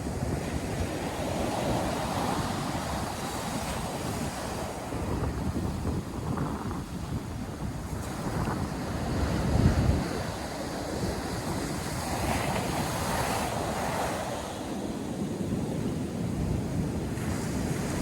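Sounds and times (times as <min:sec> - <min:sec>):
wind buffeting microphone: 0:00.0 - 0:18.0
surf waves breaking: 0:16.8 - 0:18.0.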